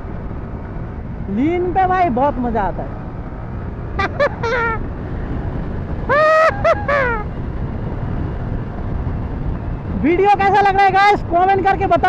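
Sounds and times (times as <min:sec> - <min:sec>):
motorcycle engine: 0:00.0 - 0:12.0
wind and road noise: 0:00.0 - 0:12.0
person's voice: 0:01.3 - 0:02.9, 0:10.0 - 0:12.0.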